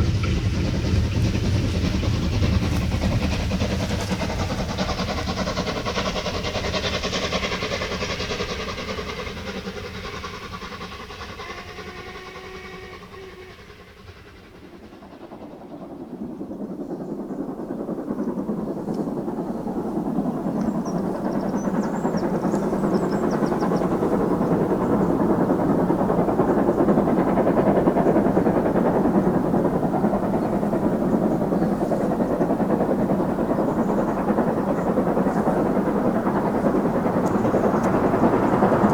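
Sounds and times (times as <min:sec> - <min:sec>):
broad rumble: 0:00.0 - 0:05.6
train running past: 0:00.0 - 0:38.9.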